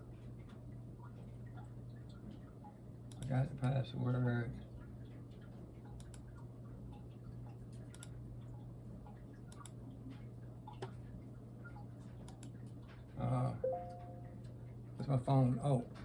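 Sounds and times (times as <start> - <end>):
steady low hum: 0.0 - 16.0
computer keys clicking: 3.1 - 3.3, 6.0 - 6.3, 7.9 - 8.2, 9.5 - 9.8, 12.2 - 12.6.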